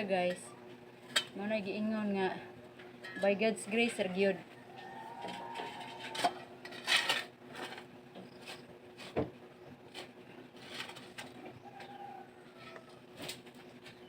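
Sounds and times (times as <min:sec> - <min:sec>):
faint steady hum: 0:00.0 - 0:14.0
scraping: 0:04.8 - 0:07.8.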